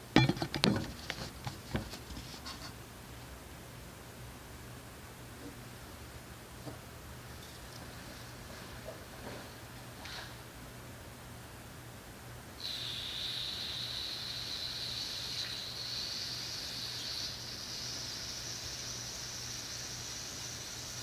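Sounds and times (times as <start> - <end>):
aerosol can spraying hiss: 12.6 - 21.0.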